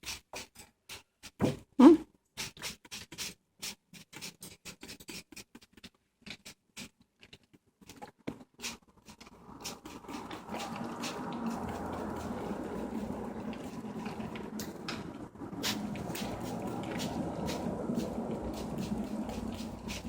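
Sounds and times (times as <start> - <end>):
bird claws scratching on paper: 2.4 - 14.8, 15.6 - 20.0
steady rushing noise: 9.4 - 20.0.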